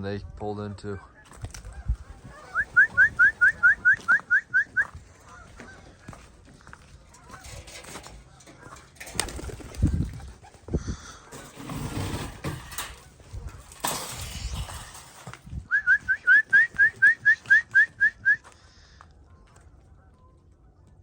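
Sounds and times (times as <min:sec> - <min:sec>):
short rising whistled notes: 0:02.6 - 0:04.9.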